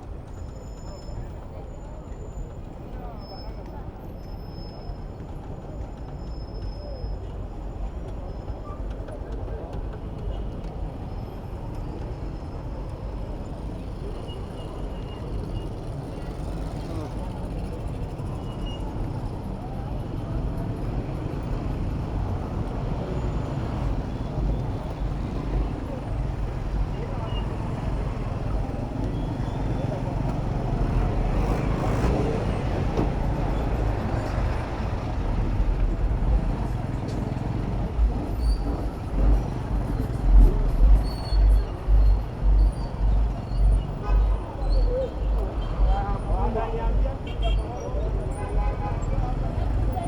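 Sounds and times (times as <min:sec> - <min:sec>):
bicycle road and wind noise: 0:00.0 - 0:50.0
passing vehicles: 0:00.0 - 0:50.0
wind rumble on microphone: 0:32.4 - 0:47.1.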